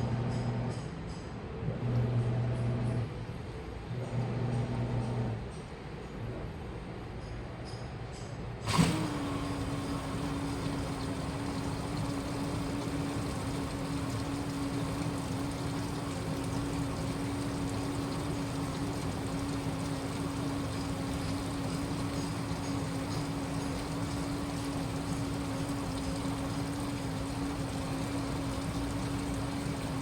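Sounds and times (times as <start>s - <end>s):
washing machine hum: 0.0s - 7.1s, 8.5s - 30.0s
water rushing: 8.7s - 30.0s.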